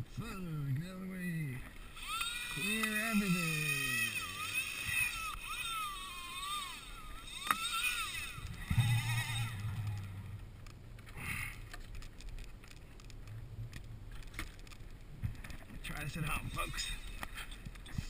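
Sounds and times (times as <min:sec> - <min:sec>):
low hum: 0:00.0 - 0:18.0
fishing reel drag whining: 0:01.7 - 0:10.4, 0:16.0 - 0:17.6.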